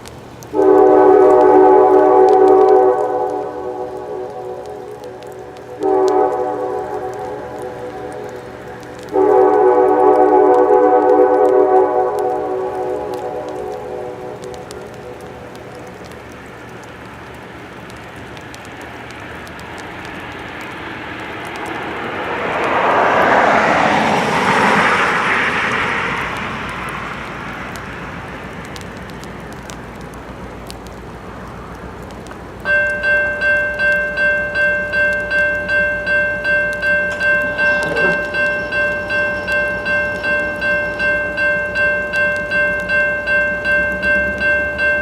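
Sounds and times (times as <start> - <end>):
train rumble and wheel noise: 0.0 - 45.0
railroad crossing bell ringing: 32.7 - 45.0.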